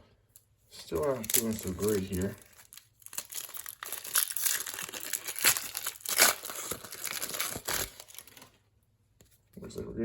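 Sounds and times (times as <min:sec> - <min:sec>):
card pack wrapper crinkling and tearing: 0:00.8 - 0:08.6.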